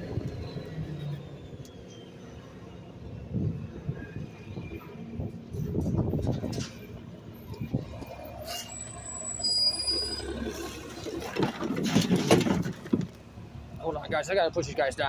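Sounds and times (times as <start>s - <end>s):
garbage truck rumbling: 0.0s - 14.1s
rattling and clanking: 5.5s - 8.7s, 10.3s - 13.3s
high-pitched squeals: 7.5s - 11.1s.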